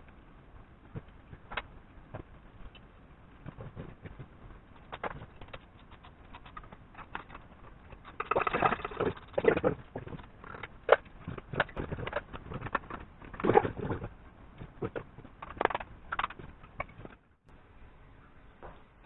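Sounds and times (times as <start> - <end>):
tools and metal parts clicking: 4.8 - 9.4.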